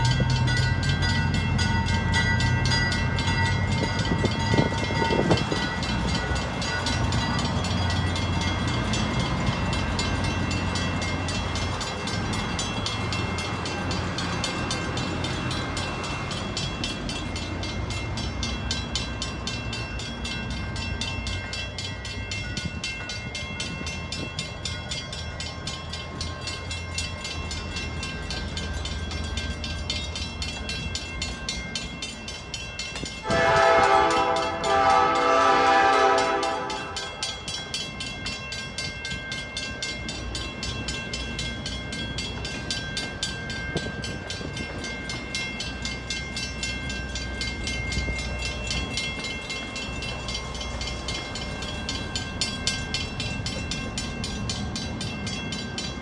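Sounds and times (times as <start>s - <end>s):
crossing bell ringing: 0.0s - 56.0s
train coaches rumbling: 0.0s - 56.0s
train air horn blasts: 33.2s - 37.2s.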